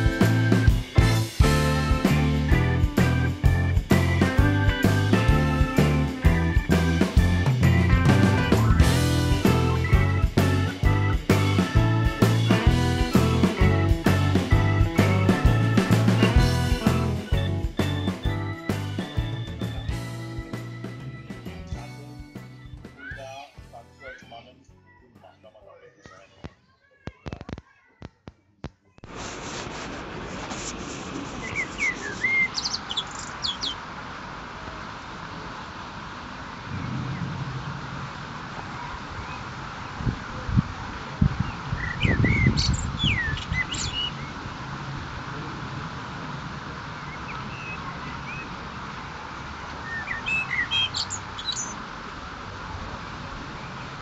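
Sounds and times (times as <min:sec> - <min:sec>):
outdoor background hiss: 0:29.1 - 0:54.0
small birds chirping: 0:31.4 - 0:33.8, 0:41.4 - 0:44.4, 0:49.8 - 0:51.8.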